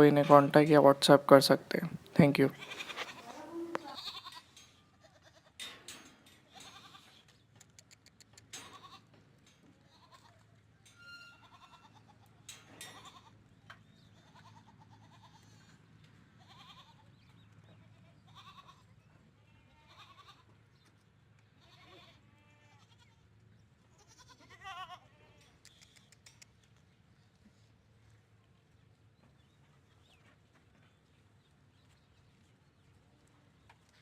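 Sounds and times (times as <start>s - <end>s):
goat kids bleating: 2.4s - 5.6s, 6.5s - 7.3s, 9.9s - 10.4s, 11.3s - 12.3s, 14.1s - 15.8s, 16.4s - 20.5s, 21.6s - 23.2s, 23.9s - 25.5s.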